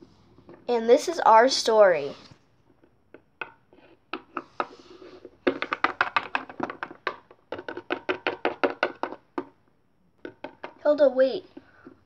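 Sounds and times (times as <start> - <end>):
plastic toy taps on hard surface: 5.5 - 9.5.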